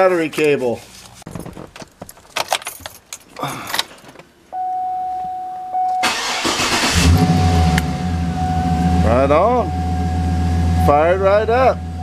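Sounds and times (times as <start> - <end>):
dashboard chime: 4.6 - 6.1, 7.3 - 10.4
car engine idling: 6.0 - 12.0.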